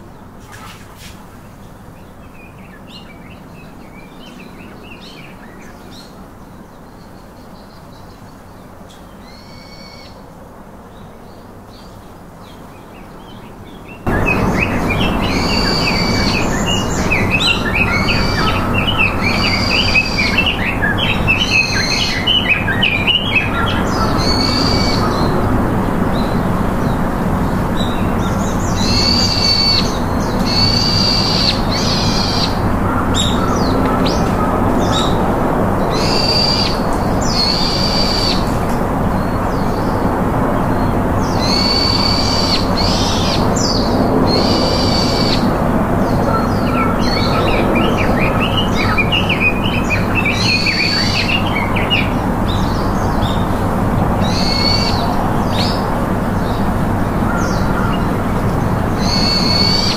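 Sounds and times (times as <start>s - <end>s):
steady background noise: 0.0s - 59.9s
rapid bird twittering: 13.2s - 25.4s, 27.8s - 35.2s, 41.2s - 53.6s, 54.2s - 56.7s, 57.3s - 59.9s
high clear bird calls: 13.4s - 25.3s.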